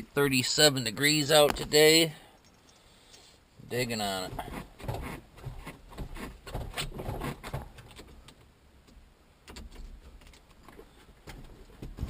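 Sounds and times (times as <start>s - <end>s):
handling noise knocks and rustling: 4.2s - 8.4s, 9.5s - 12.0s.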